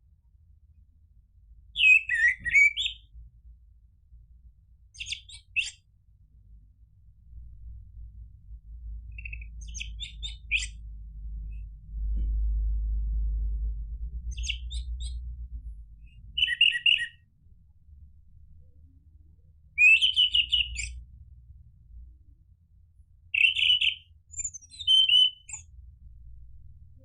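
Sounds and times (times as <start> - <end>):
low rumble: 6.4 - 16.4, 25.6 - 27.0.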